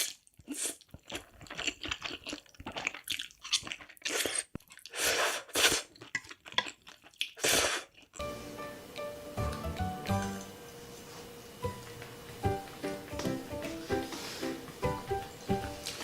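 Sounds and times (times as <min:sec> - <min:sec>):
wet chewing of noodles: 0:00.0 - 0:08.3, 0:15.2 - 0:16.0
music: 0:08.2 - 0:10.8, 0:11.6 - 0:16.0.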